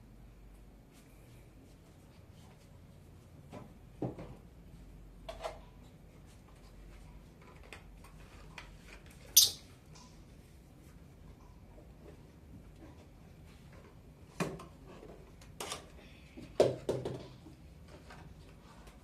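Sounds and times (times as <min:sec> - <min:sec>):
lovebird chirp: 0:09.4 - 0:09.7.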